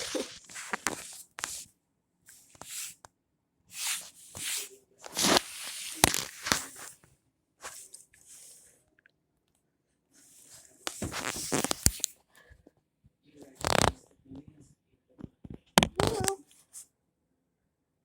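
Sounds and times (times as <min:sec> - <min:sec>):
handling rustling: 0:00.0 - 0:01.6.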